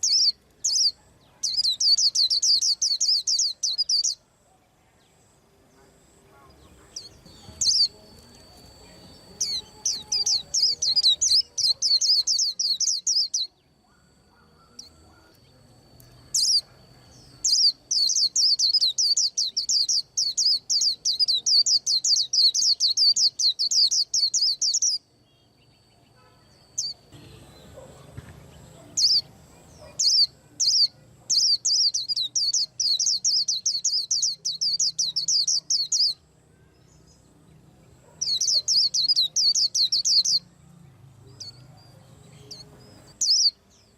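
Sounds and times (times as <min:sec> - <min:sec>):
bird chirping rapidly: 0:00.0 - 0:04.2, 0:06.8 - 0:15.6, 0:16.3 - 0:25.1, 0:28.8 - 0:36.2, 0:38.0 - 0:40.5, 0:42.5 - 0:43.6.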